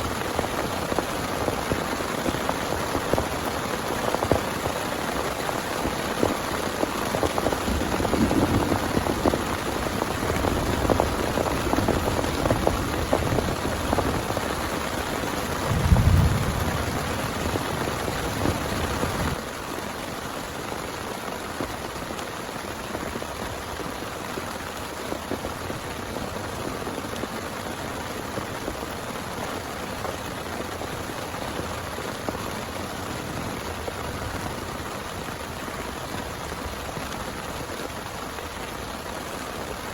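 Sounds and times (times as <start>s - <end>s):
heavy rain falling: 0.0s - 39.9s
low rumble: 15.7s - 17.6s.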